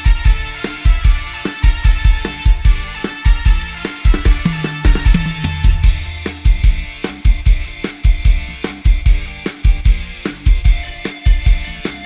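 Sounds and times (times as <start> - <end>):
band music: 0.0 - 12.0
heavy kick drum: 4.1 - 11.8.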